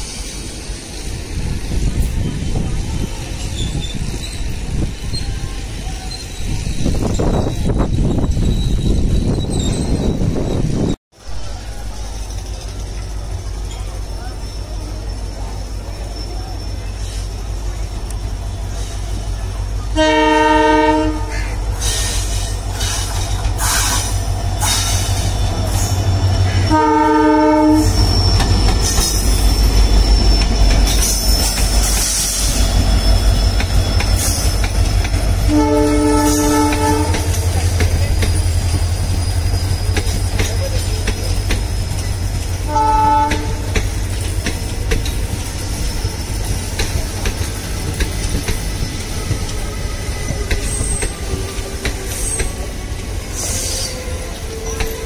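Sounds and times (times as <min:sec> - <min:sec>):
low rumble of locomotive engine: 0:01.1 - 0:55.0
thin steady wheel squeal: 0:02.2 - 0:11.0, 0:12.1 - 0:19.9, 0:21.4 - 0:55.0
multi-note locomotive horn: 0:19.9 - 0:21.6, 0:26.5 - 0:28.0, 0:35.4 - 0:37.6, 0:42.6 - 0:43.8
wheels clicking over rail joints: 0:39.6 - 0:49.7.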